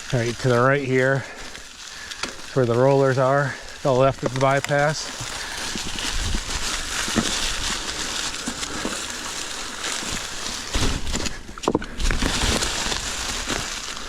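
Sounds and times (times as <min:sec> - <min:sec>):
dry leaves rustling and crunching: 0:00.0 - 0:14.0
wind buffeting microphone: 0:05.7 - 0:07.8.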